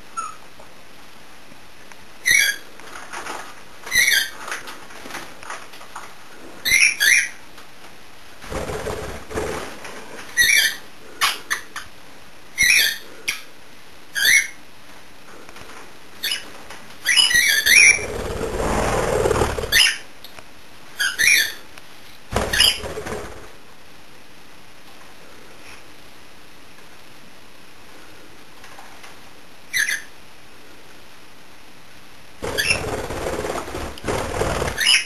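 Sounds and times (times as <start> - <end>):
parrots chirping: 2.2 - 2.7, 3.8 - 4.4, 6.6 - 7.4, 10.3 - 11.9, 12.6 - 13.5, 14.1 - 14.6, 16.2 - 20.1, 21.0 - 21.6, 22.4 - 23.4, 29.7 - 30.2, 32.4 - 35.0
rustling: 2.6 - 6.6, 17.8 - 19.9.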